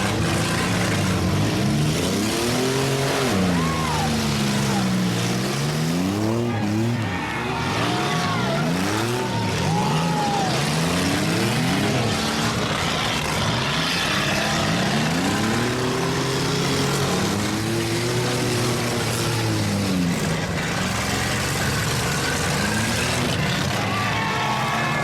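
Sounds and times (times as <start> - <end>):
car engines revving: 0.0 - 25.0.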